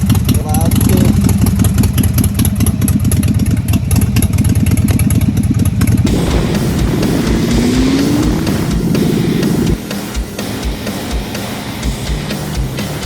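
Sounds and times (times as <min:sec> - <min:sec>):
motorcycle idling: 0:00.0 - 0:13.0
faint rising tone: 0:06.1 - 0:12.3.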